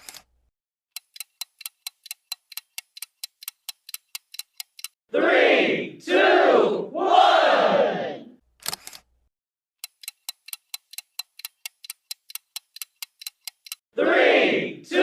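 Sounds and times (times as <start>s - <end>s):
timer ticking: 0.9s - 5.0s, 9.8s - 13.8s
crowd shouting: 5.1s - 8.3s, 14.0s - 15.0s.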